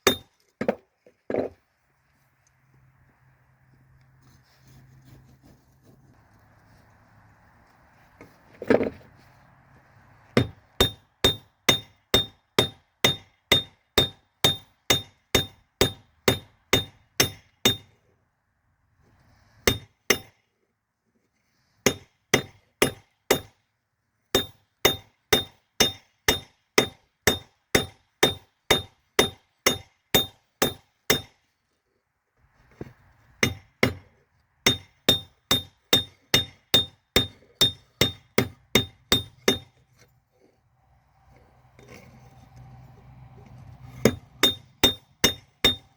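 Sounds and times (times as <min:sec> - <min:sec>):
hammer striking metal on anvil: 0:00.0 - 0:00.3, 0:10.4 - 0:17.9, 0:19.7 - 0:20.4, 0:21.9 - 0:23.6, 0:24.4 - 0:31.3, 0:33.4 - 0:34.0, 0:34.7 - 0:39.8, 0:44.0 - 0:45.9.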